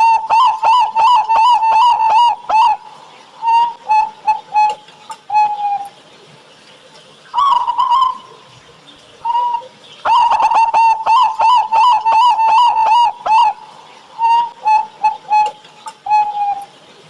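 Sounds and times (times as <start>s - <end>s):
dove cooing: 0.0s - 6.0s, 7.4s - 17.0s.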